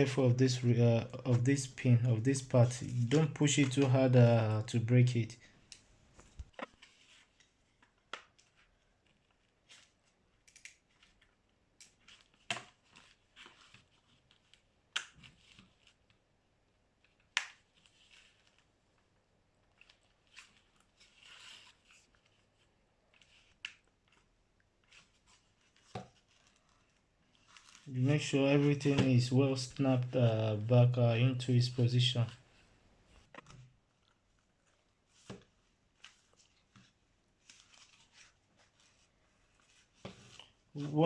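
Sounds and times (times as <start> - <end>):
small plastic clicks and snaps: 10.4 - 10.8.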